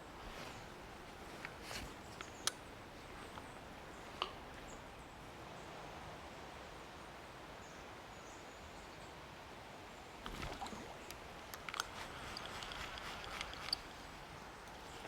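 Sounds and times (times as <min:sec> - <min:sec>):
rustling: 0:00.0 - 0:04.4, 0:10.2 - 0:15.0
outdoor background hiss: 0:00.0 - 0:15.0
fishing tackle clicking and knocking: 0:10.3 - 0:14.0.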